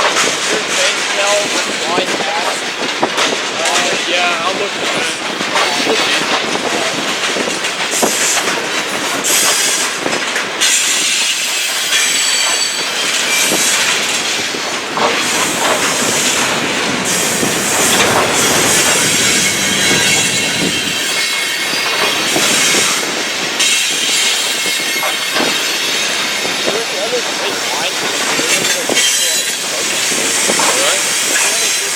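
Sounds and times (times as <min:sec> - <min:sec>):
train wheels clacking over rail joints: 0:00.0 - 0:31.9
high-pitched flange squeal: 0:15.2 - 0:22.6.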